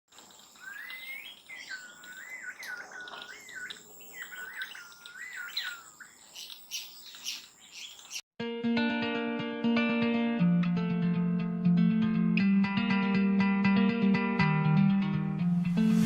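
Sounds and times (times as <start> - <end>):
bird singing whistled notes: 0.4 - 8.2.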